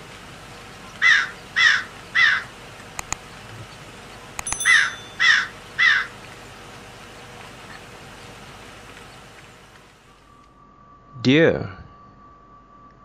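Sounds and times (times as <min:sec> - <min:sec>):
crow cawing: 0:01.0 - 0:02.5, 0:04.7 - 0:06.2
faint clicks: 0:03.0 - 0:03.2.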